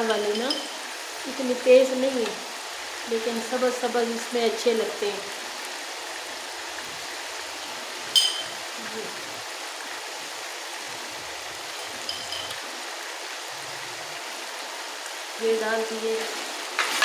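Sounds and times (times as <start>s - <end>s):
curry sizzling and bubbling: 0.0s - 17.0s
sharp metallic clink: 8.2s - 8.6s.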